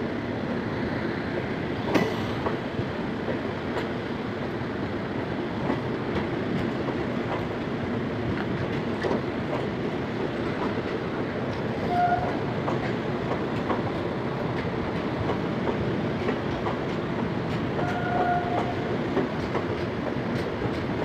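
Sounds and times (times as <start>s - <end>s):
train wheels rumbling on track: 0.0s - 21.0s
sharp rail clicks: 1.8s - 2.6s, 8.3s - 21.0s.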